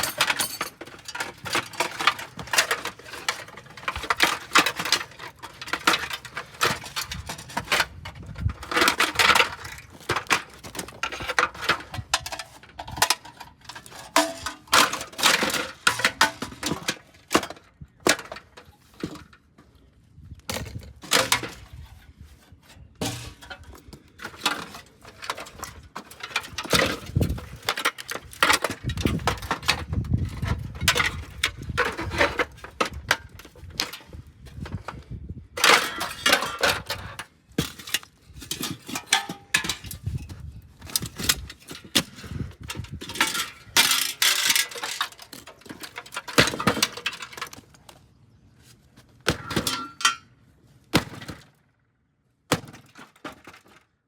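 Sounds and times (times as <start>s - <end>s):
broken pieces clinking: 0.0s - 7.3s, 43.1s - 47.6s
microwave oven being smashed: 49.2s - 50.2s.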